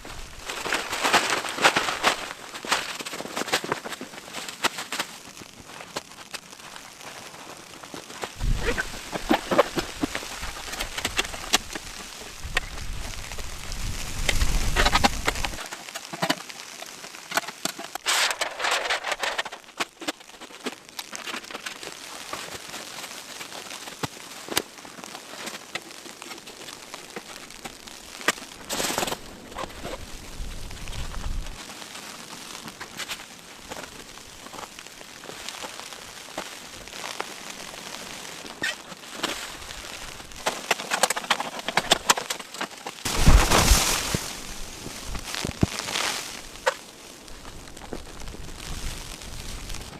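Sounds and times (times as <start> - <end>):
tent fabric swishing: 0.0 - 5.0, 43.0 - 46.6
snow pattering on tent fabric: 0.0 - 49.9.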